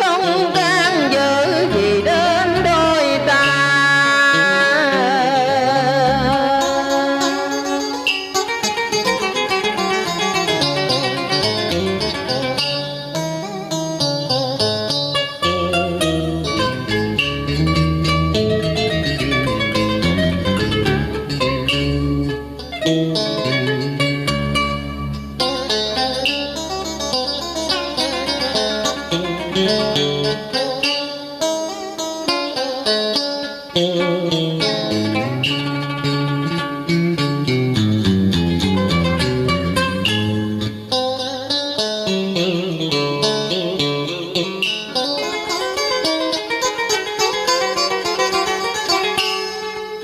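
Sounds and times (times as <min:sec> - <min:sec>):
plucked guitar melody: 0:00.0 - 0:50.0
low held bass: 0:15.5 - 0:25.9.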